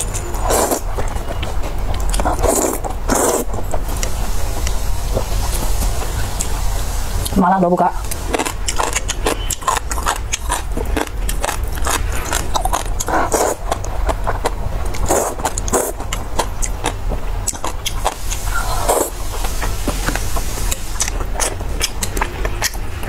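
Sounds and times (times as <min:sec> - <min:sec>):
person chewing with wet smacks: 0:00.0 - 0:06.6, 0:08.0 - 0:23.0
steady low hum: 0:00.0 - 0:23.0.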